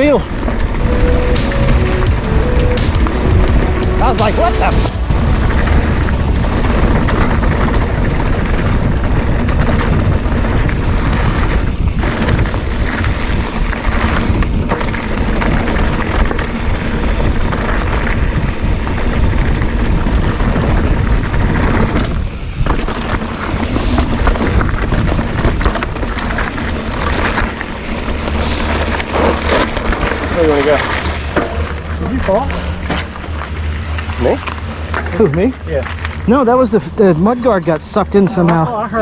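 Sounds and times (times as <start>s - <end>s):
bike rattling on rough ground: 0.0s - 0.8s, 4.3s - 39.0s
wind rush on microphone: 4.3s - 30.4s.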